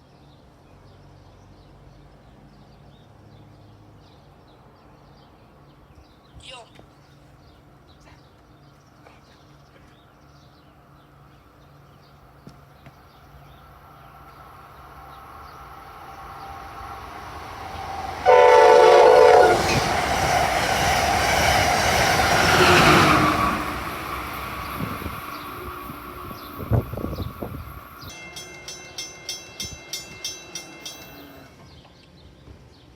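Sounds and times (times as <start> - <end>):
train passing at speed: 10.3 - 32.9
train horn blast: 18.2 - 20.0.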